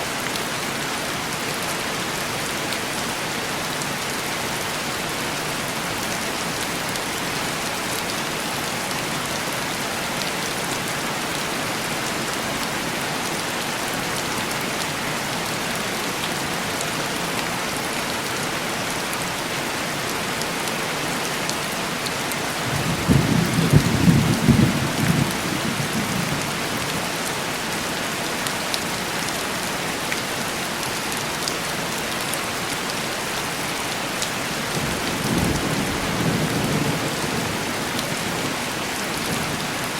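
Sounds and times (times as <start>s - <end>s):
heavy rain on window glass: 20.4s - 30.0s, 33.9s - 39.9s
thunder rumbling: 22.7s - 26.5s.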